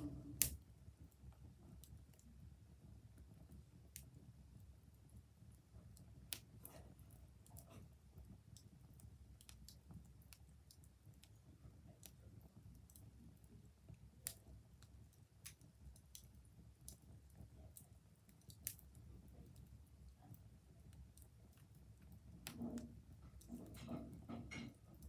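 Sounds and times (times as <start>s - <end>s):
sharp pops of fire: 0.0s - 0.6s
wood fire crackling: 0.0s - 25.0s.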